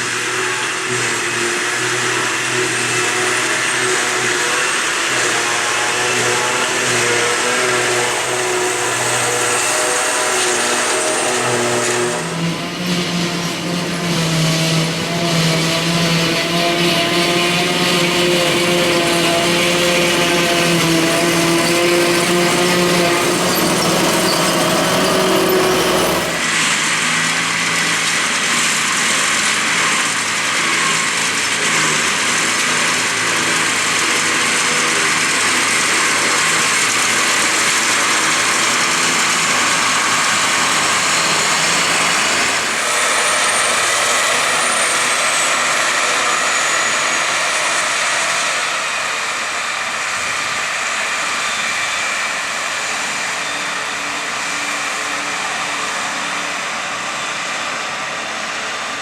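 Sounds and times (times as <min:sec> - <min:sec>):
diesel farm machinery running: 0:00.0 - 0:59.0
hissing machine sound: 0:17.8 - 0:26.6.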